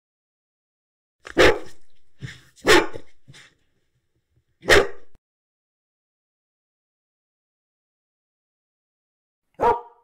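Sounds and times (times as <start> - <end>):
dog barking: 1.3 - 2.0, 2.6 - 3.2, 4.6 - 5.2, 9.6 - 10.0.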